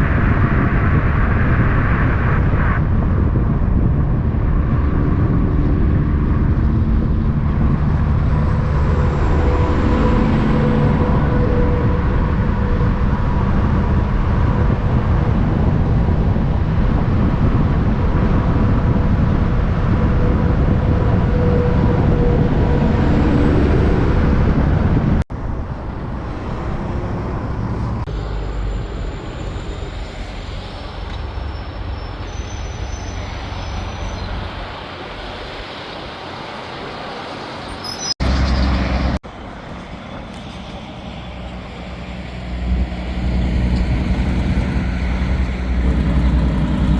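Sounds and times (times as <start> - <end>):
road traffic: 0.0 - 46.9
truck diesel engines: 2.8 - 46.9.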